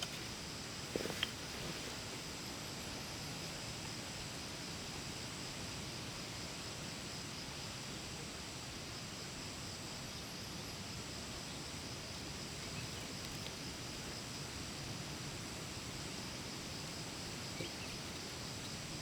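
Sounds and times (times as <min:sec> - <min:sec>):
insect chorus buzzing: 0:00.0 - 0:19.0
low background hiss: 0:00.0 - 0:19.0.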